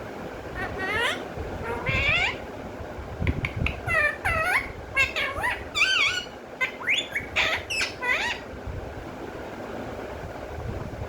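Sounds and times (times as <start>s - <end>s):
parrot chirping and squawking: 0.5s - 2.5s, 3.3s - 8.5s
parrot warbled call: 0.6s - 2.5s, 3.5s - 8.5s.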